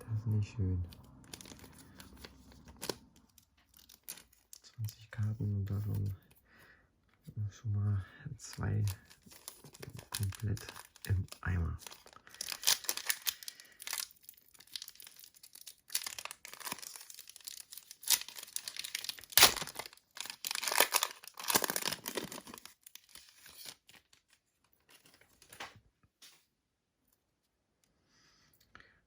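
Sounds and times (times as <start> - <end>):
plastic packaging crinkling: 0.9 - 6.1, 8.4 - 25.7.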